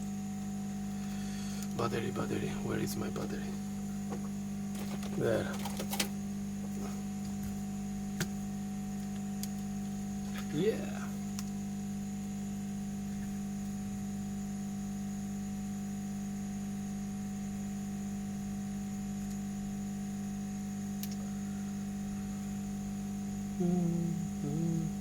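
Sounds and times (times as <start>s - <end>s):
electrical hum: 0.0s - 25.0s
faint high whine: 19.2s - 24.9s.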